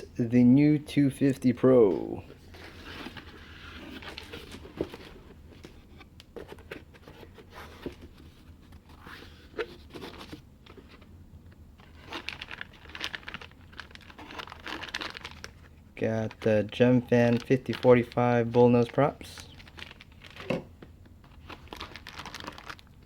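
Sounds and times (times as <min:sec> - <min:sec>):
plastic and paper crinkling: 0:02.3 - 0:05.8, 0:11.8 - 0:23.0.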